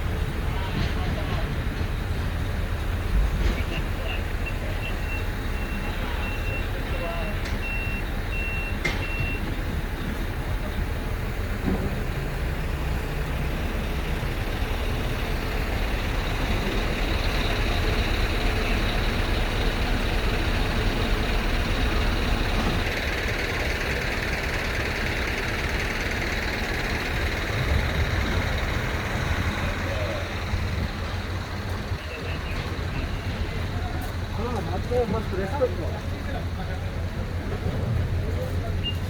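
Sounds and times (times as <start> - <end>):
truck engine rumbling: 0.0 - 39.0
reversing beeper beeps: 4.0 - 9.6, 38.8 - 39.0.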